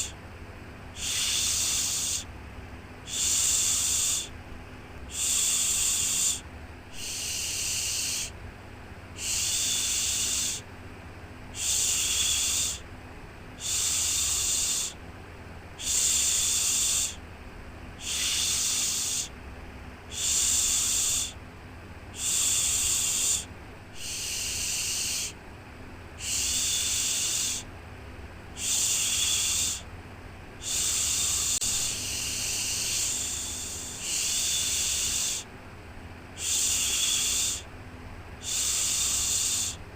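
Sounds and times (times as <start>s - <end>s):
person shushing: 1.0s - 2.3s, 7.0s - 8.3s, 9.2s - 10.6s, 11.6s - 12.8s, 15.8s - 17.2s, 18.0s - 19.3s, 22.2s - 25.4s, 26.2s - 27.7s, 28.6s - 29.9s, 30.6s - 35.5s, 36.4s - 37.7s, 38.4s - 39.8s.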